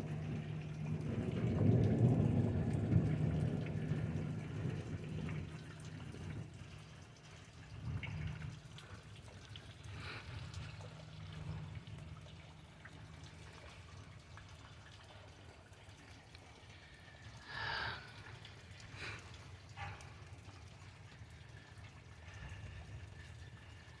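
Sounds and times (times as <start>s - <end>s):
low rumble of thunder: 0.0s - 8.8s
rain dripping and trickling: 0.0s - 24.0s.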